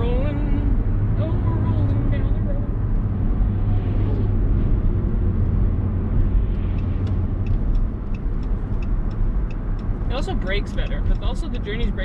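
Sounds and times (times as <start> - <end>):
truck engine and tyres rumbling: 0.0 - 12.0
light repeating clicks: 6.7 - 10.0.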